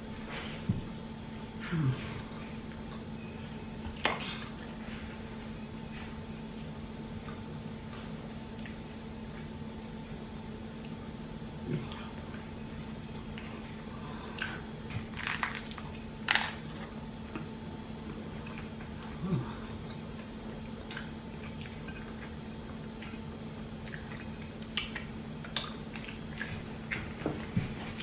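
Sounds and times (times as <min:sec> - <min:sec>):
steady low hum: 0:00.0 - 0:28.0
crunching food: 0:14.3 - 0:17.5
wet chewing: 0:23.8 - 0:28.0.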